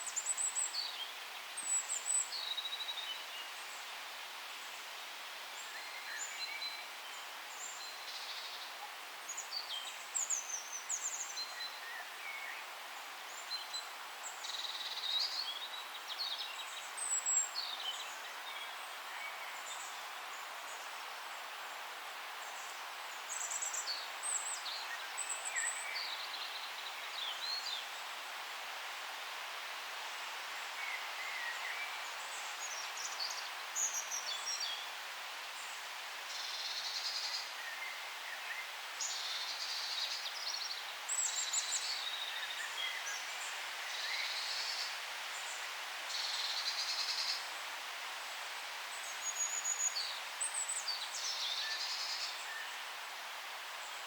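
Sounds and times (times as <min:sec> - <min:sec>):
steady background hiss: 0:00.0 - 0:54.0.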